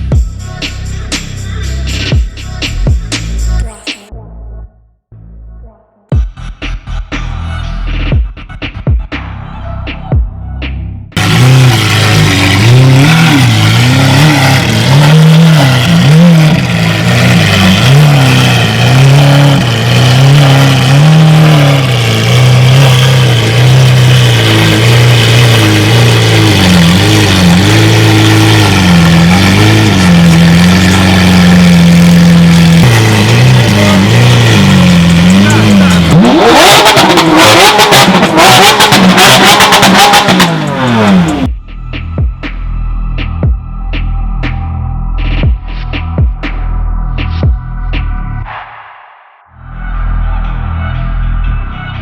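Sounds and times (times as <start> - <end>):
car engine revving: 11.2 - 51.7.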